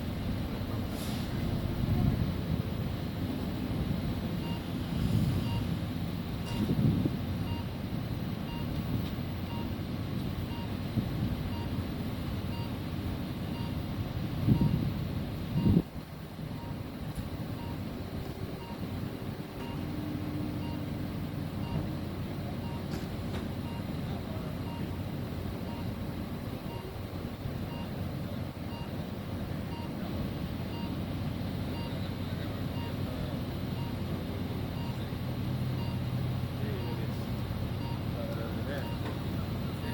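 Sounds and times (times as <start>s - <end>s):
lorry engine running: 0.0s - 39.9s
vehicle warning beeper: 3.6s - 39.9s
wind on microphone: 6.5s - 7.3s.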